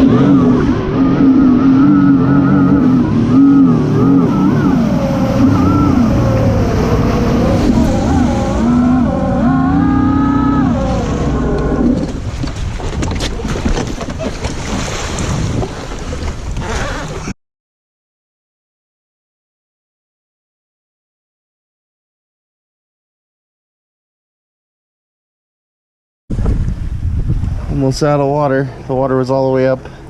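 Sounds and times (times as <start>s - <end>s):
jet ski engine: 0.0s - 17.3s, 26.8s - 30.0s
rush of water and wind: 0.0s - 17.4s, 26.3s - 30.0s.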